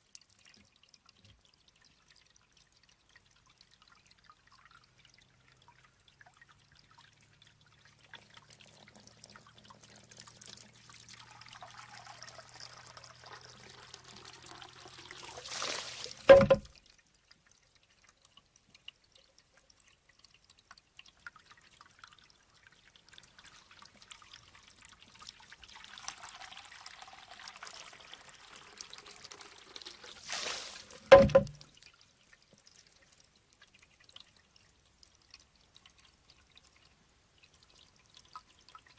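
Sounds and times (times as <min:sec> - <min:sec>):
water pouring out in a rush: 0:00.0 - 0:16.9, 0:20.6 - 0:38.9
water trickling into bamboo tube: 0:00.0 - 0:38.9
bamboo tube clacking: 0:16.2 - 0:16.8, 0:31.0 - 0:31.7.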